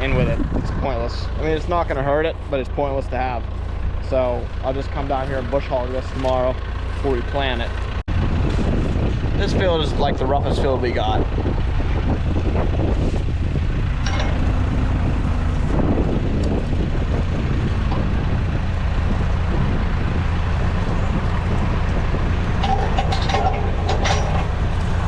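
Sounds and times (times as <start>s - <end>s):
tractor engine running: 0.0s - 25.0s
knocks and rattles: 11.5s - 25.0s.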